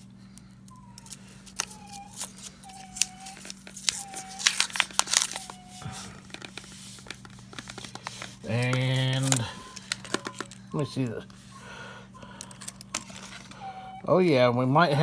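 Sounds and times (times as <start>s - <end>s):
paper wrapper tearing and crinkling: 1.2s - 10.3s
coins clicking together: 8.4s - 11.1s.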